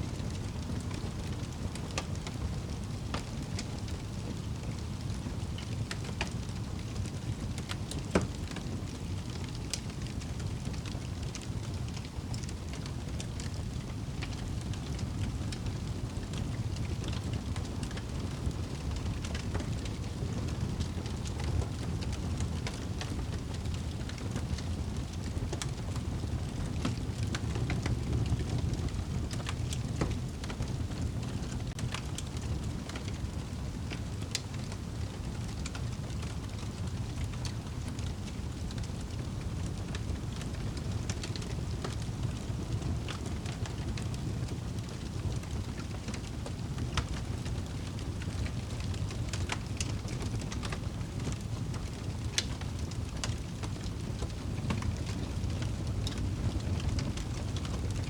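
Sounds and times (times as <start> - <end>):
fire rumbling in fireplace: 0.0 - 58.0
wood crackling and popping: 0.2 - 58.0.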